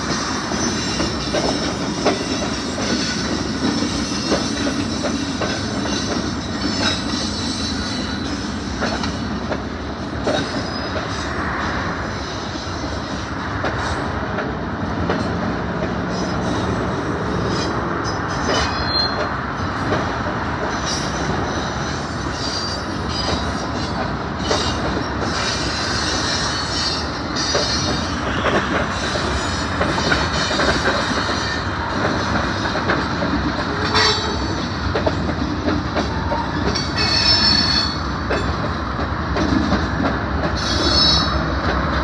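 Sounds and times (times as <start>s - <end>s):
steel wheels rumbling on rails: 0.0s - 42.0s
high-pitched wheel squeals: 16.1s - 19.4s, 20.7s - 32.6s, 36.1s - 38.0s, 40.6s - 41.4s.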